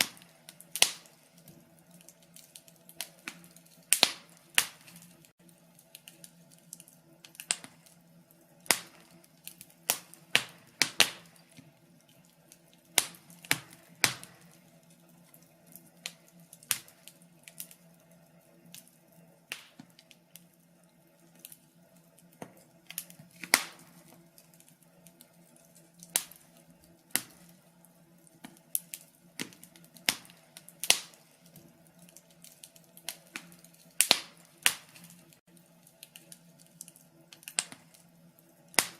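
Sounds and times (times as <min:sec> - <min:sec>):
wood fire popping and snapping: 0:00.0 - 0:38.9.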